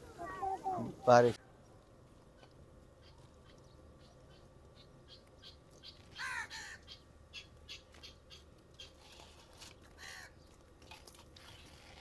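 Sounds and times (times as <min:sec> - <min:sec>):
bird calling harshly: 0:02.4 - 0:09.0.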